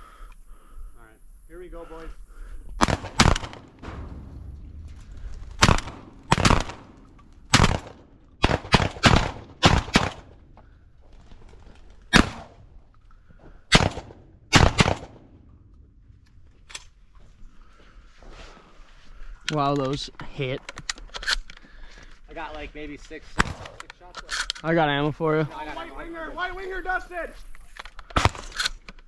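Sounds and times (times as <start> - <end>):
shotgun blasts: 2.8 - 10.5, 12.1 - 12.7, 13.7 - 15.4, 23.4 - 23.8.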